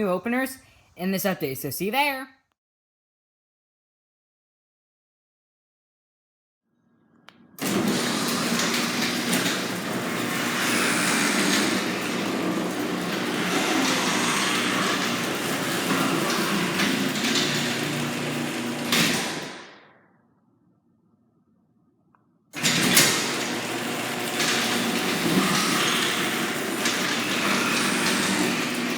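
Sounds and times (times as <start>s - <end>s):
garage door opener motor hum: 7.4s - 20.0s, 22.6s - 28.9s
garage door moving: 7.6s - 19.9s, 22.6s - 28.9s.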